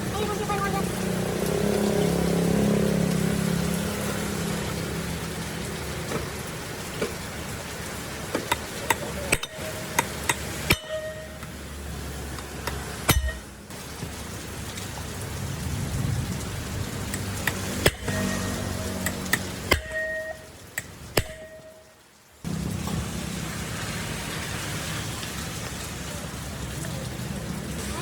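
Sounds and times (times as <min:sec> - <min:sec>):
sharp clicks and taps: 0:08.3 - 0:11.5, 0:17.1 - 0:18.2.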